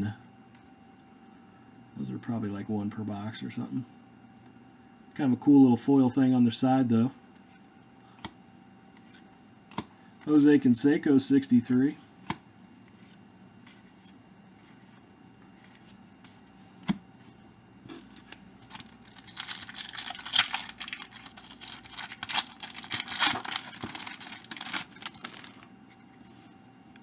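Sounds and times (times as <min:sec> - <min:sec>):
wrapper tearing and crinkling: 0:18.0 - 0:25.7.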